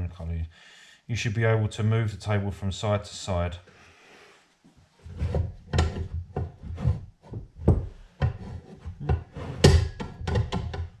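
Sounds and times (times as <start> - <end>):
metal scraping and rubbing: 5.0 - 11.0
metal knocks and clunks: 5.1 - 11.0.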